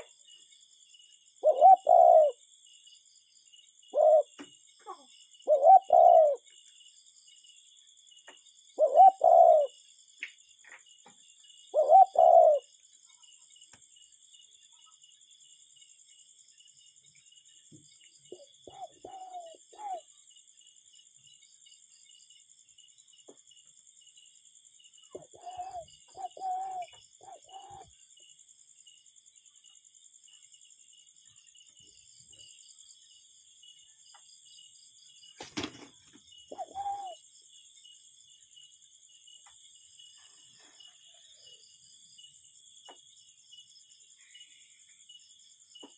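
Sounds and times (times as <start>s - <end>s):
faint high insect trill: 0.0s - 45.9s
cuckoo calling: 1.4s - 2.4s, 3.9s - 6.4s, 8.8s - 9.8s, 11.7s - 12.7s, 18.3s - 20.1s, 25.1s - 27.9s, 36.5s - 37.2s.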